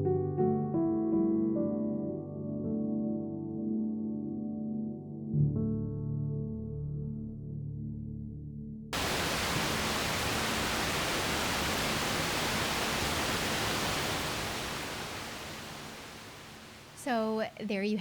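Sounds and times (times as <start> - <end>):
flowing water rushing: 9.0 - 17.3.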